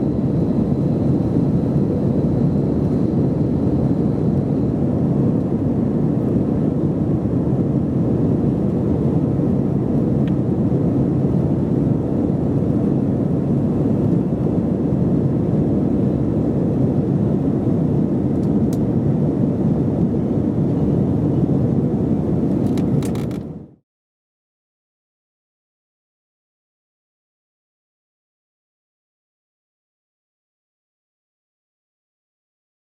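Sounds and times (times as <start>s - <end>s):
jet engine hum: 0.0s - 23.7s.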